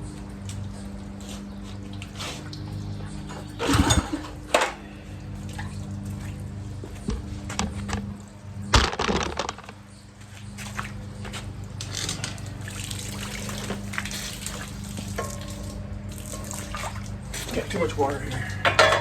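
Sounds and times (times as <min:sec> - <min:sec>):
steady low hum: 0:00.0 - 0:19.0
water running and splashing: 0:12.3 - 0:18.7.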